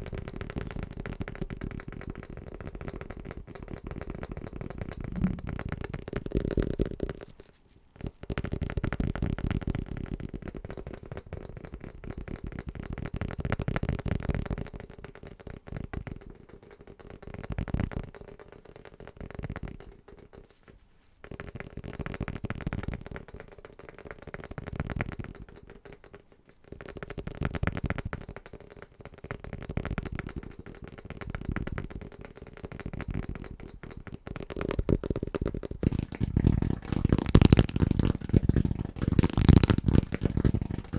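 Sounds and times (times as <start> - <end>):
rapid tapping on household objects: 21.2 - 40.9.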